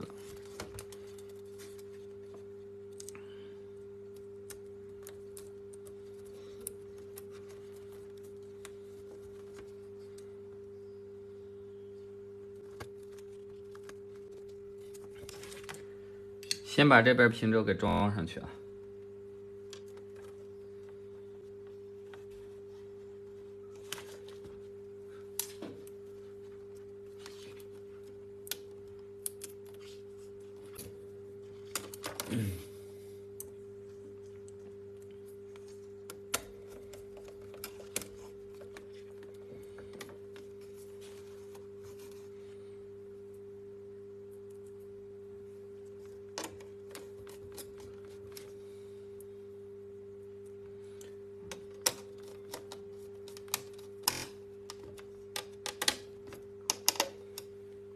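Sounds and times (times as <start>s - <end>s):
steady low hum: 0.0s - 57.9s
plastic laptop parts clicking: 56.7s - 57.5s.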